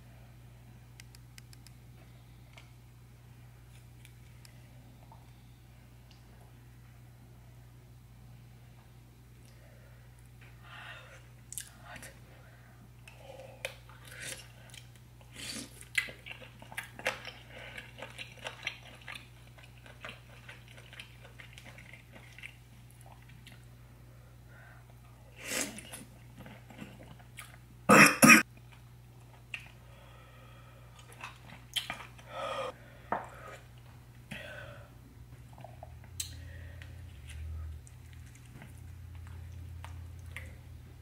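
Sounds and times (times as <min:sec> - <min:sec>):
chewing and biting seafood: 0:15.8 - 0:23.6
person coughing: 0:27.9 - 0:28.4.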